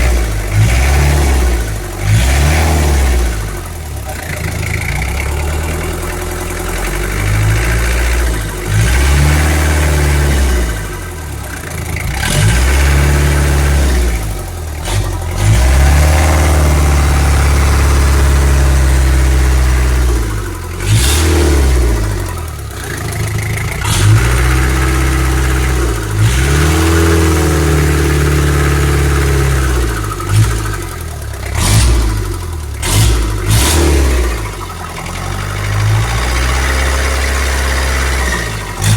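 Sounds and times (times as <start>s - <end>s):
diesel engine revving: 0.0s - 38.9s.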